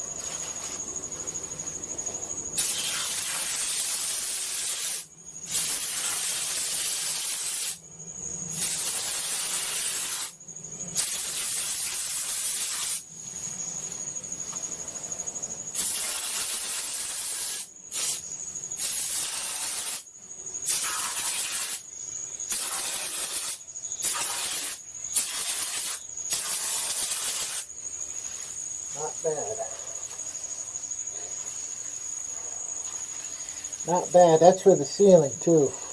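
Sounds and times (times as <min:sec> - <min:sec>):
spray foam gun hissing: 0:02.6 - 0:07.8, 0:08.6 - 0:10.4, 0:11.0 - 0:13.0, 0:22.5 - 0:27.7.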